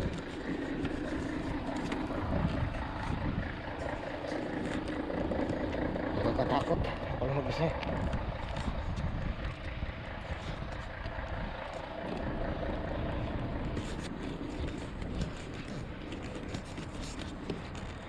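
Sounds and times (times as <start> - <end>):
wind buffeting microphone: 0.0 - 4.1, 5.2 - 12.6.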